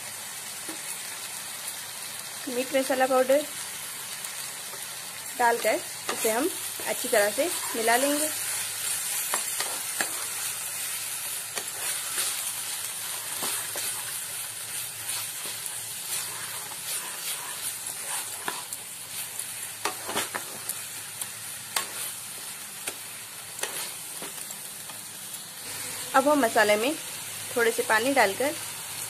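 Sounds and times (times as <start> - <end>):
masala sizzling in oil: 0.0 - 29.0
spatula scraping pan: 5.5 - 20.9, 21.7 - 24.4.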